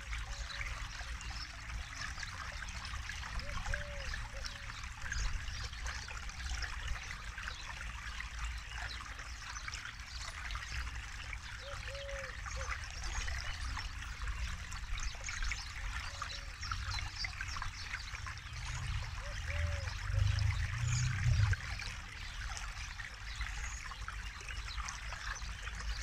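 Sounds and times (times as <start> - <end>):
river water trickling over stones: 0.0 - 26.0
faint low arched calls: 2.5 - 6.1, 11.5 - 22.5
low rumble: 18.6 - 21.8.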